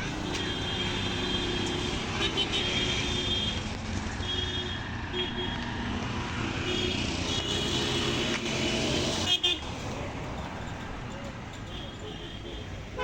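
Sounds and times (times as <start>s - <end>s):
vehicle road rumble: 0.0s - 13.0s.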